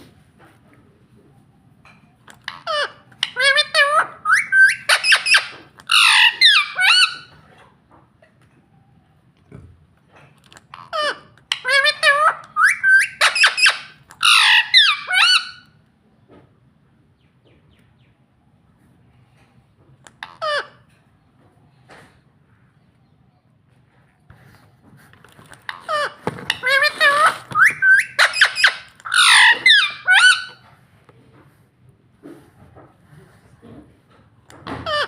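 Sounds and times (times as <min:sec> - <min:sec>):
parrot squawking harshly: 0:02.4 - 0:07.3, 0:10.7 - 0:15.7, 0:20.2 - 0:20.8, 0:25.6 - 0:30.6.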